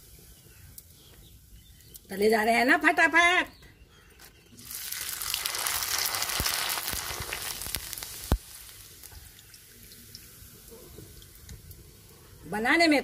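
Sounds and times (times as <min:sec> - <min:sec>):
papad sizzling in hot oil: 0:04.6 - 0:12.2.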